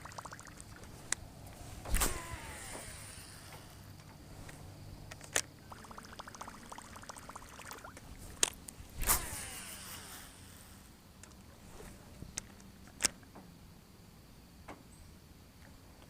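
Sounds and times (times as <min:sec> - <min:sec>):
whir falling in pitch: 0:01.8 - 0:04.0, 0:09.0 - 0:10.9
fishing reel clicking: 0:01.9 - 0:04.2, 0:05.1 - 0:11.4.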